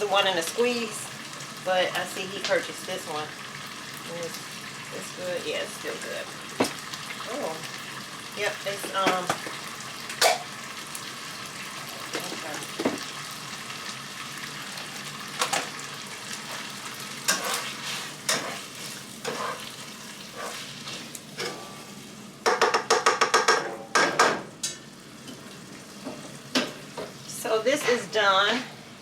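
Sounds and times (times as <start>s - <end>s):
meat sizzling in a frying pan: 0.0s - 23.3s, 24.5s - 29.0s
utensil stirring and knocking pan: 8.7s - 9.6s, 17.2s - 21.7s, 22.4s - 25.4s.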